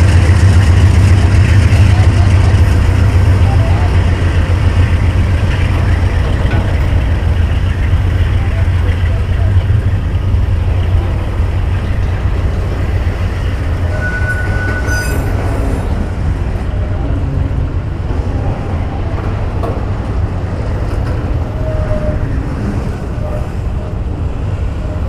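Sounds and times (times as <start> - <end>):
freight train wheels rumbling: 0.0 - 25.0
high wheel squeal: 13.4 - 16.0.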